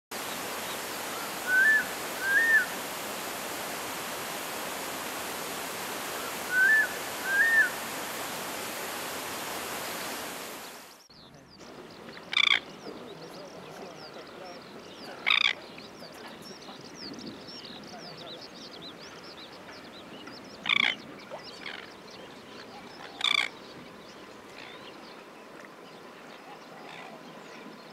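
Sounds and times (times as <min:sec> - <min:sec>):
rushing water: 0:00.1 - 0:27.9
harsh bird calls: 0:00.2 - 0:03.1, 0:05.7 - 0:08.4
bird whistling: 0:01.4 - 0:02.7, 0:06.5 - 0:07.8.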